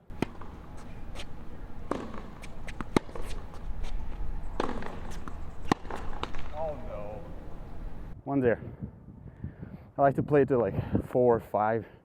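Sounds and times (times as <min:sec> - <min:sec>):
ball bouncing on court: 0:00.1 - 0:00.6, 0:01.8 - 0:03.5, 0:04.6 - 0:06.6
tennis ball struck by rackets: 0:00.1 - 0:08.0
shoes moving on court: 0:00.1 - 0:08.2.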